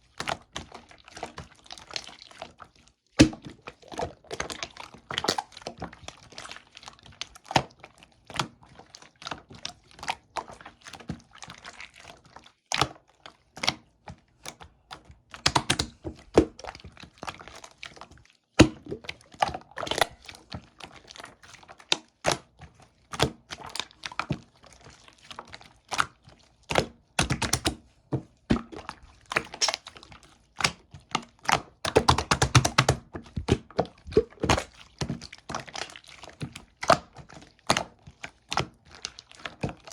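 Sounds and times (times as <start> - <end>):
slime squished by hand: 28.4 - 39.9.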